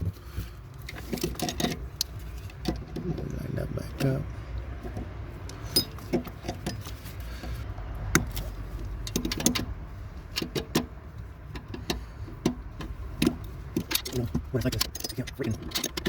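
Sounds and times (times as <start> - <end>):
hand tools clinking against metal: 4.9 - 7.6, 11.5 - 16.0.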